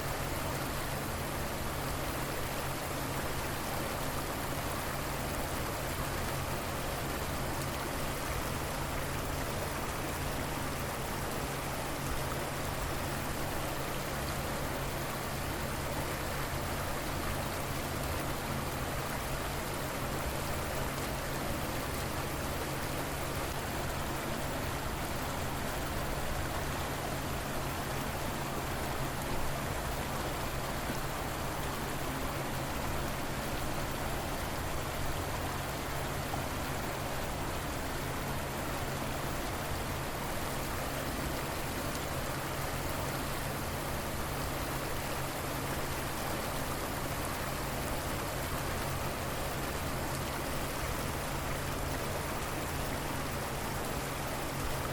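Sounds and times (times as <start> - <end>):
river water flowing: 0.0 - 54.9.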